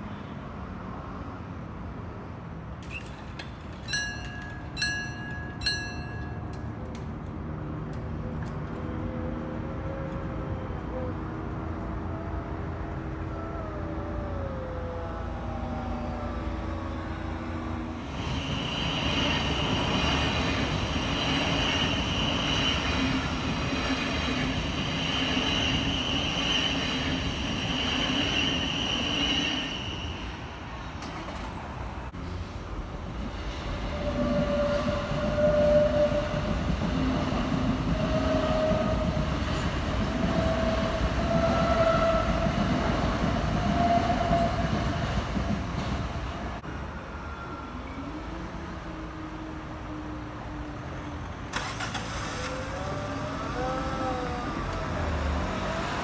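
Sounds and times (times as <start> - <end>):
train high whine: 3.8 - 31.5, 32.1 - 56.0
train wheels rumbling: 16.8 - 46.6.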